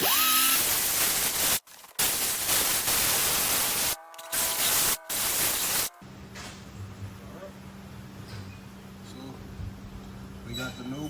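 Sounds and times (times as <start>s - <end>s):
rotary tool abrasive disc hissing: 0.0s - 6.0s.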